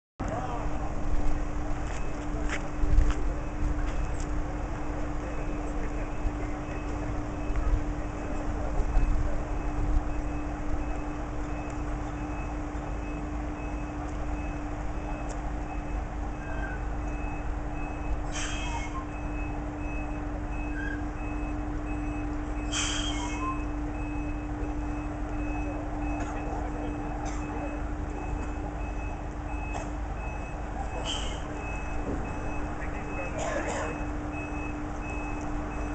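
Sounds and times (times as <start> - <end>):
truck engine running: 0.2 - 35.9
reversing alarm beeping: 0.5 - 35.9
short hisses: 22.7 - 23.4.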